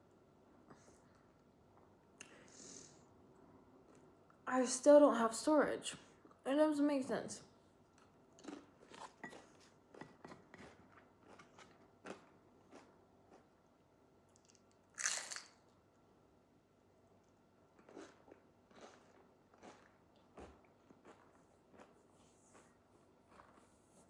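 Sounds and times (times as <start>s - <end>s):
person chewing: 8.0s - 13.6s, 14.3s - 15.5s, 17.8s - 23.7s.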